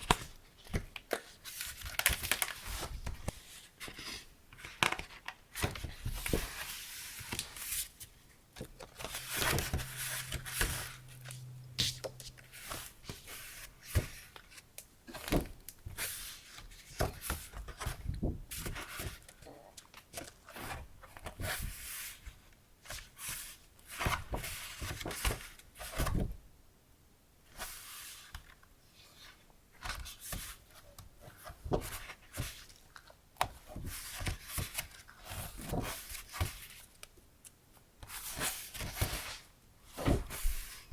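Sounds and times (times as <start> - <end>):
packaging rustling and crinkling: 0.0 - 7.9.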